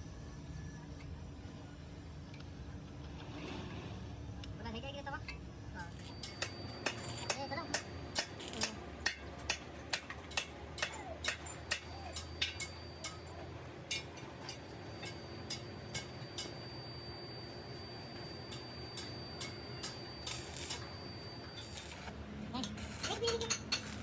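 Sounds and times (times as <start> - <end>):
thin high whine: 0.0 - 8.8, 11.4 - 24.0
low machine hum: 0.0 - 24.0.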